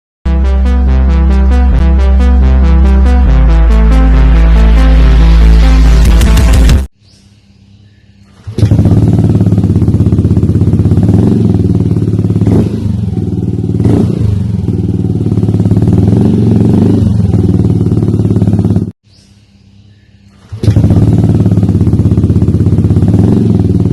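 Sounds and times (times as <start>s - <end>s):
scooter engine running loudly: 8.4s - 18.9s, 20.5s - 23.9s.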